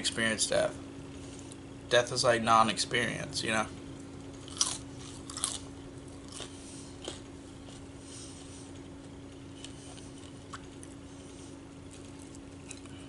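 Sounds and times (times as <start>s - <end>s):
person chewing crunchy food: 4.3s - 13.0s.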